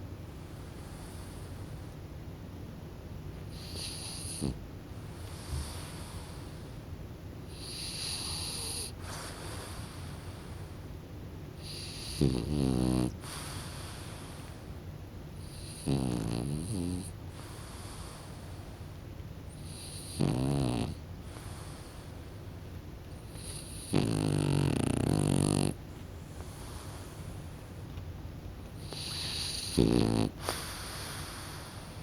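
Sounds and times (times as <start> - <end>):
soft hissing breaths: 0.0 - 2.1, 3.4 - 28.0, 28.6 - 32.0
puppy snoring: 3.5 - 4.6, 5.2 - 6.7, 7.5 - 10.6, 11.6 - 14.6, 15.4 - 18.8, 19.5 - 22.2, 23.1 - 25.8, 28.8 - 32.0.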